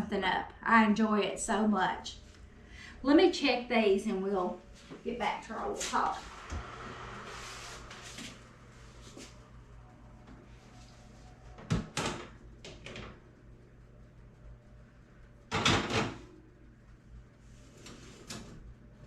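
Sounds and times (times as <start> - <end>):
oven door opening and closing: 11.6 - 13.2, 15.5 - 16.4.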